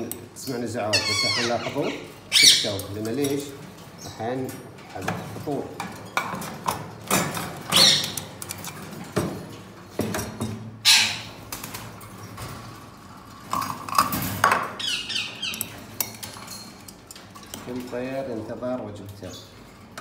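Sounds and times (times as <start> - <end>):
birds squawking harshly: 0.8 - 2.9, 7.7 - 8.3, 10.8 - 11.4, 14.7 - 15.9.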